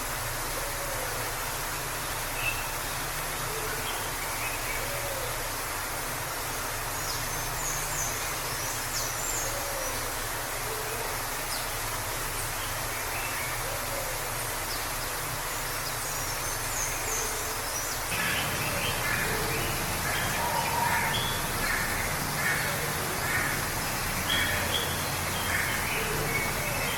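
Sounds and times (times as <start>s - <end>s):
waterfall rushing: 0.0s - 26.9s
harsh bird calls: 16.9s - 26.9s.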